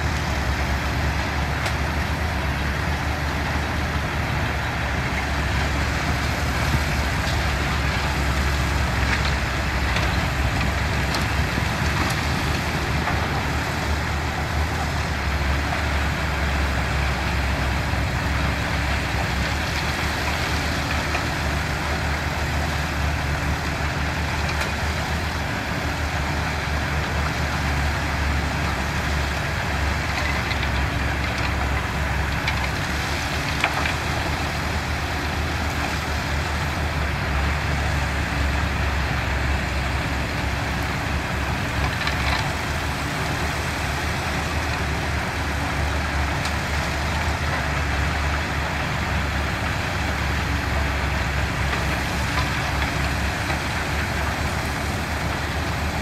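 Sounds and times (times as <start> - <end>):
diesel machinery rumbling: 0.0 - 56.0
faint clicks and clanks: 29.3 - 37.1, 40.4 - 48.9.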